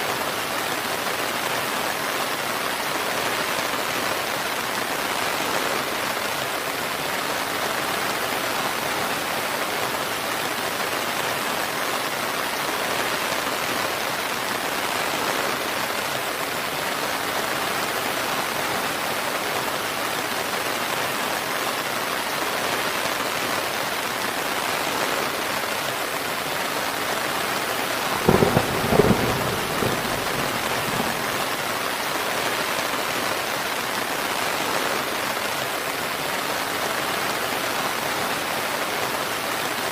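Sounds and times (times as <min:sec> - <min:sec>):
steady rain: 0:00.0 - 0:39.9
thunder clap: 0:28.2 - 0:31.5.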